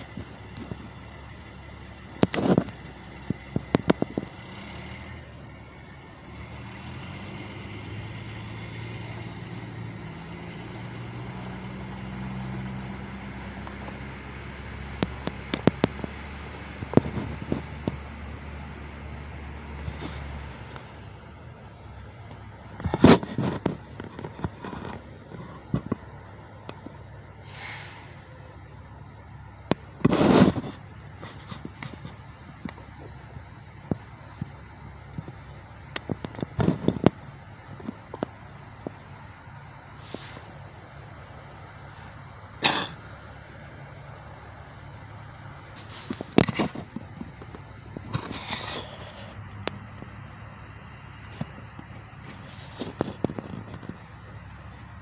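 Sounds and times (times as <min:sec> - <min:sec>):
crackling rustling noise: 0:00.0 - 0:07.5, 0:12.3 - 0:55.0
truck engines idling: 0:00.0 - 0:55.0
scattered clicks and knocks: 0:02.1 - 0:04.6, 0:22.3 - 0:27.0, 0:33.8 - 0:39.0, 0:51.2 - 0:54.5.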